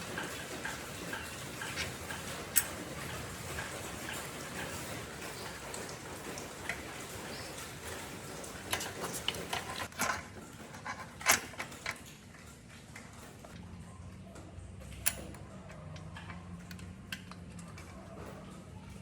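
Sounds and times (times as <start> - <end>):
tools clicking and knocking: 8.7 - 12.1, 14.9 - 18.0.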